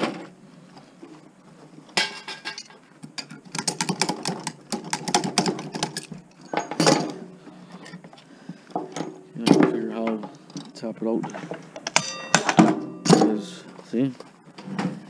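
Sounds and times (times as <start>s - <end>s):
hand tools clinking on metal: 2.0s - 7.2s, 8.7s - 14.0s.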